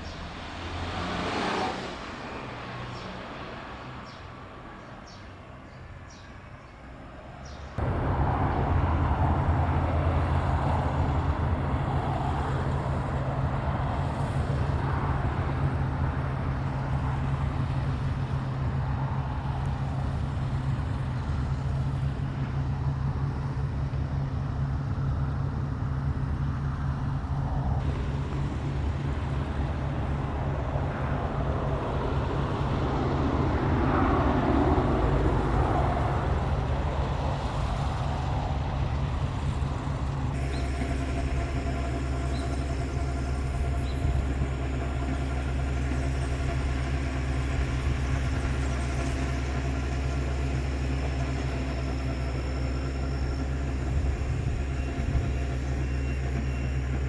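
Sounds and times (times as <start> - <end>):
bicycle road noise: 0.0 - 57.0
wind rumble: 7.8 - 57.0.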